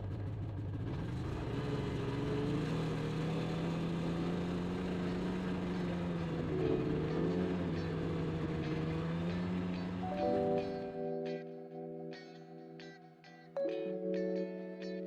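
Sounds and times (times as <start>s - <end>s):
snowmobile engine running: 0.0s - 11.1s.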